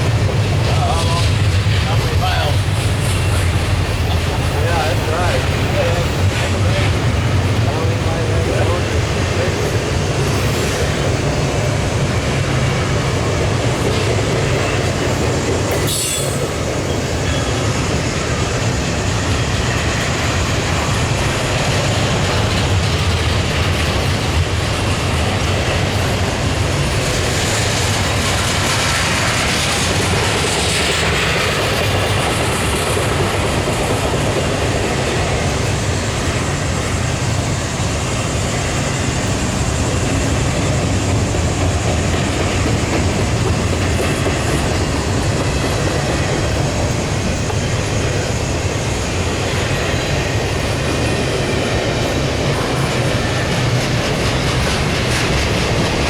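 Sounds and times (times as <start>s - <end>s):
freight train wheels rumbling: 0.0s - 56.0s
wheel screech: 14.6s - 17.8s.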